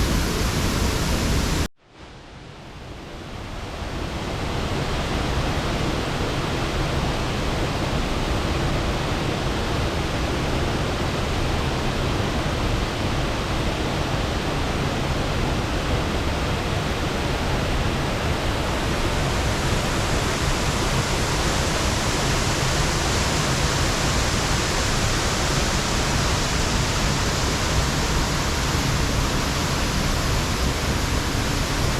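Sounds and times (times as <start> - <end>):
waterfall rushing: 0.0 - 1.7, 16.8 - 31.9.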